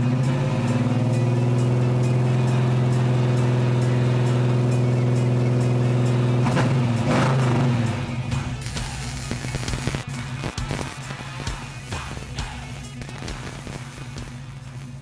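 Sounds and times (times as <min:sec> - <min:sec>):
car engine running: 0:00.0 - 0:10.4
music: 0:00.0 - 0:15.0.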